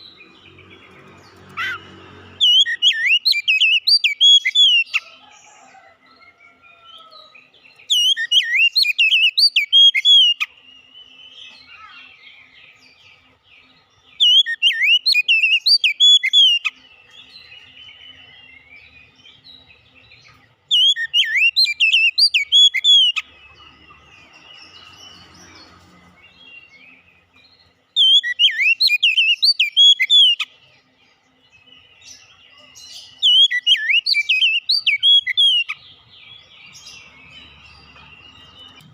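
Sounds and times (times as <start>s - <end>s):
bird twittering: 0.0s - 5.0s, 7.8s - 30.6s, 31.2s - 38.9s
bird singing whistled phrases: 2.4s - 5.0s, 7.9s - 12.1s, 14.2s - 16.7s, 20.7s - 23.3s, 28.0s - 30.5s, 32.5s - 35.8s.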